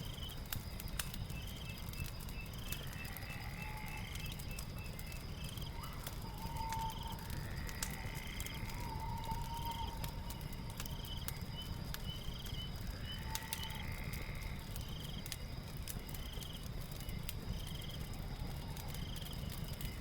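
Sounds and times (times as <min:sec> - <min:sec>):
log fire crackling: 0:00.0 - 0:20.0
longer lower animal calls: 0:02.6 - 0:14.9.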